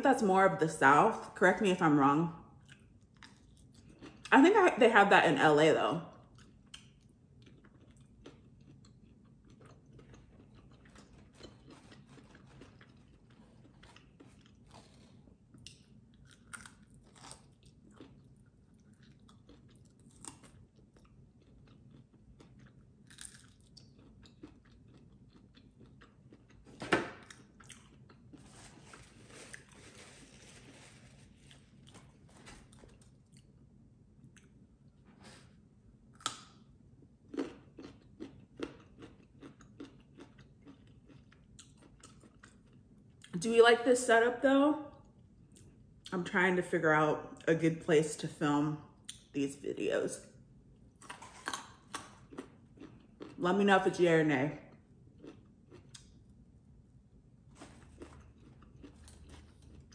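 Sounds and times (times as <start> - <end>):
chewing and biting: 2.6 - 4.3, 6.3 - 33.6, 37.2 - 43.3, 51.0 - 53.4, 55.1 - 56.2, 57.5 - 59.9
small crunches and mouth clicks: 6.3 - 33.5, 51.0 - 53.4, 55.2 - 56.3, 57.5 - 59.9.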